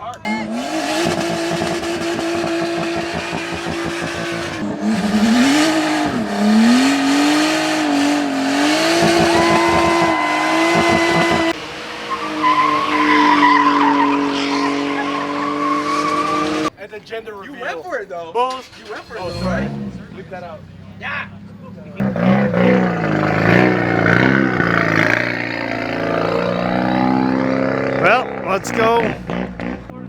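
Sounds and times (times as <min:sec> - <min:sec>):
car engine revving high: 0:00.0 - 0:16.7, 0:19.1 - 0:20.2, 0:21.4 - 0:30.0
tyres spinning and squealing: 0:00.0 - 0:30.0.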